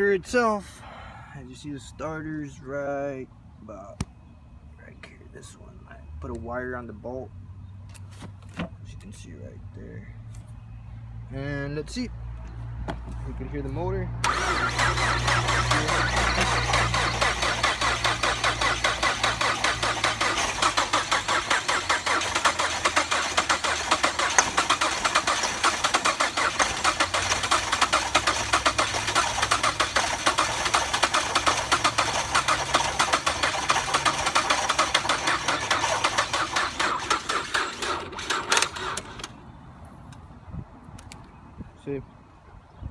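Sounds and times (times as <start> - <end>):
starter motor cranking engine: 14.2 - 39.4.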